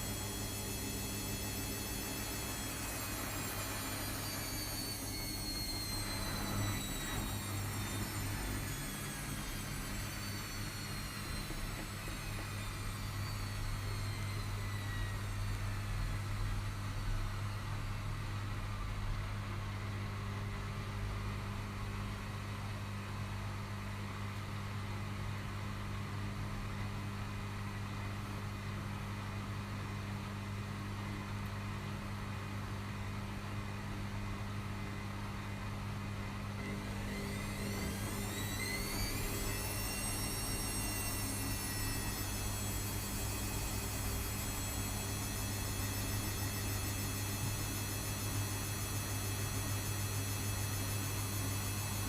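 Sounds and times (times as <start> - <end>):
high motor whine: 0.0 - 17.7, 36.6 - 52.0
rising drum whine: 0.0 - 21.7, 36.5 - 52.0
washing machines humming: 0.0 - 52.0.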